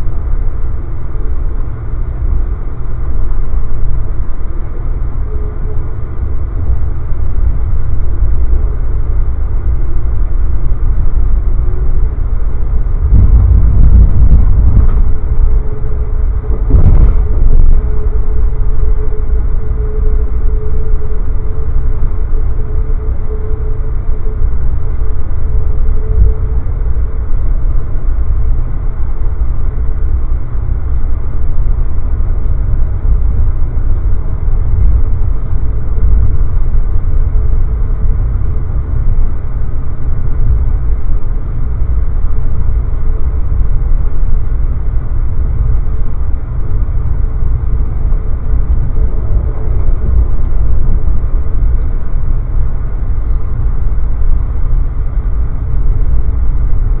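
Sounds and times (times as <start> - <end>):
train rumbling inside coach: 0.0 - 57.0.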